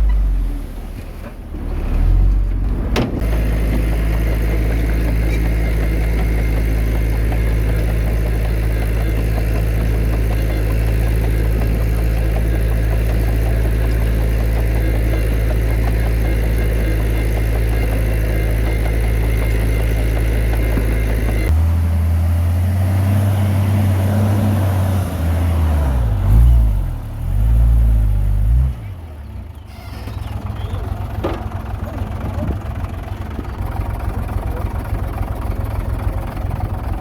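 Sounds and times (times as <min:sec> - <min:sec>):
heavy diesel engine droning: 0:00.0 - 0:37.0
engine note rising and falling: 0:14.8 - 0:28.8.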